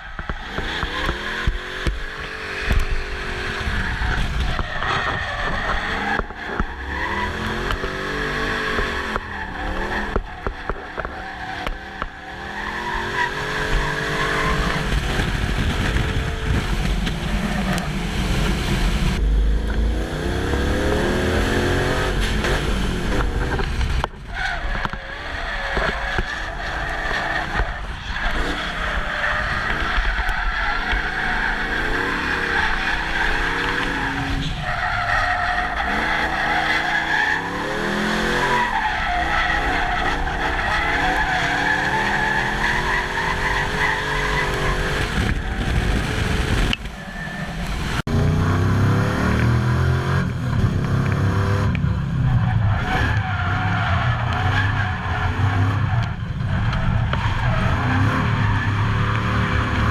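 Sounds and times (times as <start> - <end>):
engine revving: 0.0 - 34.6, 35.5 - 59.9
tires squealing: 0.0 - 59.9.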